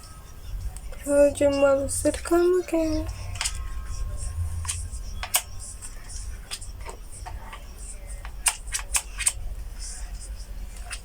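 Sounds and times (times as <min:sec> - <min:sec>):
steady low hum: 0:00.0 - 0:11.0
sharp clicks and taps: 0:04.6 - 0:05.5.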